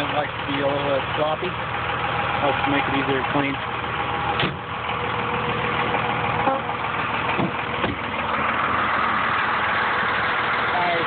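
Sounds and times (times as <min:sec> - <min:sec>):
diesel engine idling: 0:00.0 - 0:11.0
light engine knocks: 0:07.3 - 0:08.1.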